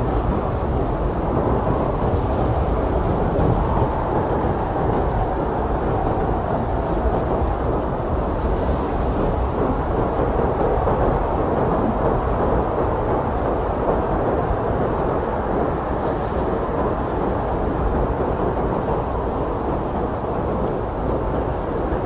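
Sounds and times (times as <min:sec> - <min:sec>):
strong blizzard wind: 0:00.0 - 0:22.0.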